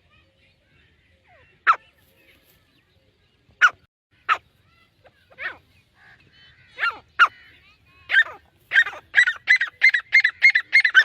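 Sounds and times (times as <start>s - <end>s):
francolin calling: 5.1s - 11.0s.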